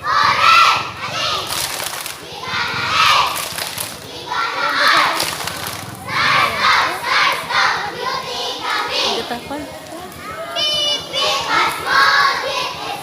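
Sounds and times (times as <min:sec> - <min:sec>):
children shouting and cheering: 0:00.0 - 0:13.0.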